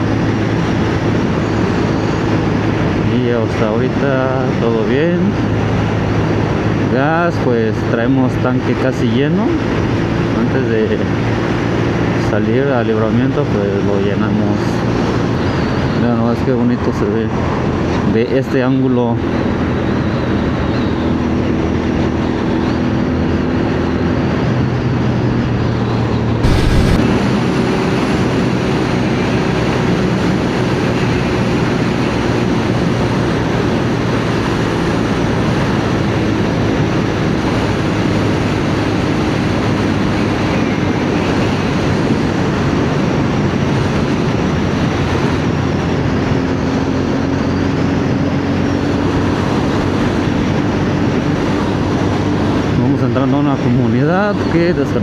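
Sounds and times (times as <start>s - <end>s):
wind and road noise: 0.0s - 55.0s
loud thump: 26.4s - 27.3s.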